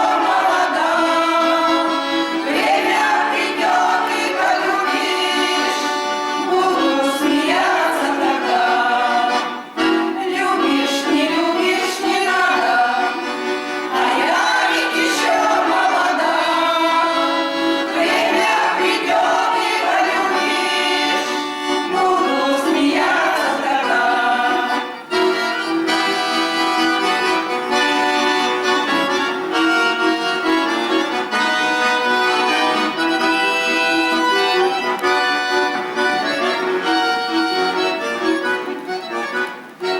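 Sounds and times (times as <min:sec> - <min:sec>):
accordion playing folk tune: 0:00.0 - 0:39.9.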